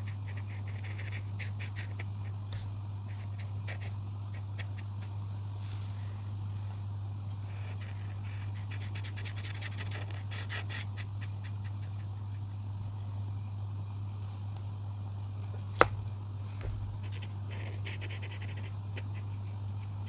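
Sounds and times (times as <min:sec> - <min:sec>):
coloring tool scratching on paper: 0:00.0 - 0:06.1, 0:07.4 - 0:12.7, 0:16.6 - 0:20.0
steady low hum: 0:00.0 - 0:20.0.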